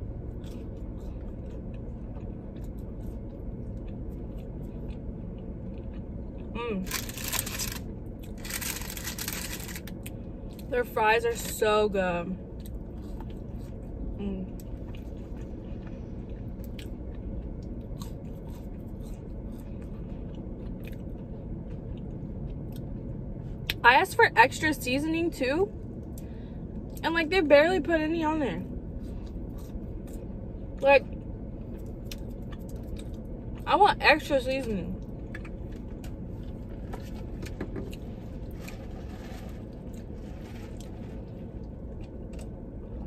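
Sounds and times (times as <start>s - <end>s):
chewing crunches and mouth clicks: 0.0s - 10.7s, 12.5s - 23.8s, 29.0s - 30.4s, 31.0s - 33.7s, 34.9s - 43.0s
low rumble inside car: 0.0s - 43.0s
steady low hum: 0.0s - 43.0s.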